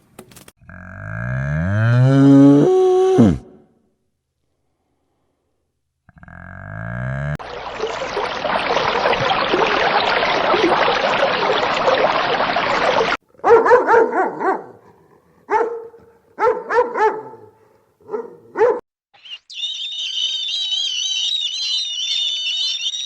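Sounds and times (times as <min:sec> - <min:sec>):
dog barking: 0:13.4 - 0:18.8.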